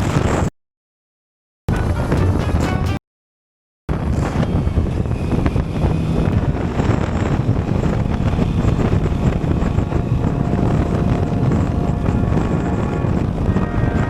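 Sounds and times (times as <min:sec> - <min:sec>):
wind rushing over microphone: 0:00.0 - 0:00.5, 0:01.7 - 0:03.0, 0:03.9 - 0:14.0
motorcycle engine running: 0:04.0 - 0:13.5.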